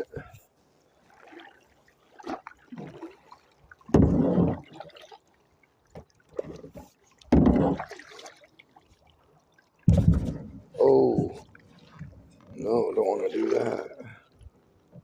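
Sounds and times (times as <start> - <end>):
paddle splashing in water: 1.0 - 15.0
water dripping and trickling: 1.1 - 15.0.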